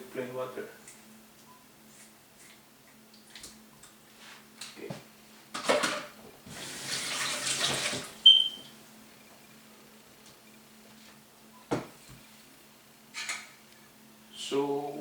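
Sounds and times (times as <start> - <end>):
tap water running and splashing: 6.5 - 8.2.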